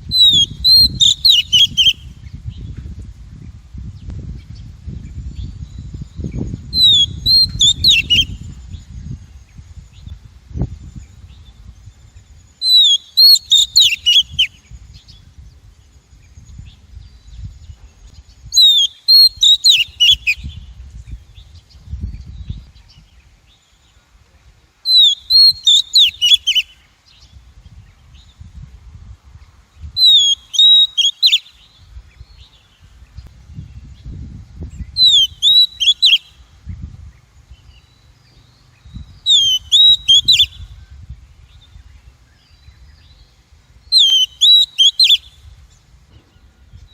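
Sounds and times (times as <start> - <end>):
bird whistling short phrases: 0.1 - 2.0, 6.8 - 8.4, 12.6 - 14.5, 18.6 - 20.6, 24.9 - 26.8, 30.0 - 31.6, 35.0 - 36.3, 39.2 - 40.7, 43.9 - 45.4.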